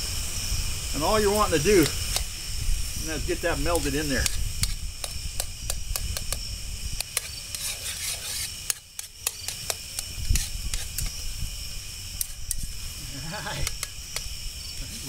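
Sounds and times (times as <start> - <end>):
insects droning: 0.0 - 15.0
metal spoon scraping frying pan: 7.1 - 11.1.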